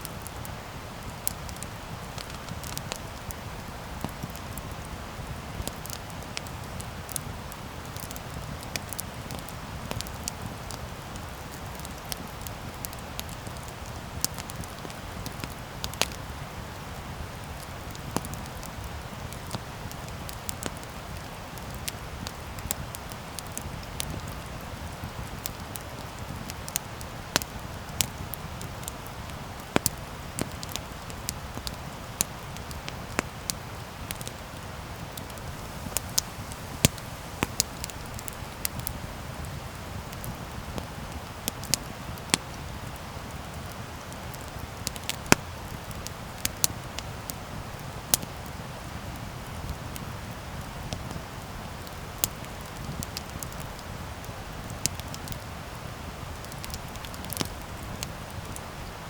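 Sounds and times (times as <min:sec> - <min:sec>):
low rumble of flames: 0:00.0 - 0:59.0
burning wood popping and snapping: 0:19.3 - 0:34.4, 0:35.1 - 0:42.5, 0:43.6 - 0:47.1, 0:56.4 - 0:58.6.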